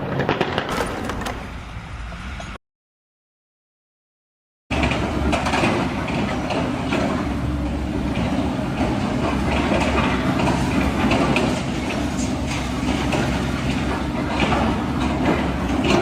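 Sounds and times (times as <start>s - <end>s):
heavy vehicle engine rumbling: 0.7s - 2.6s.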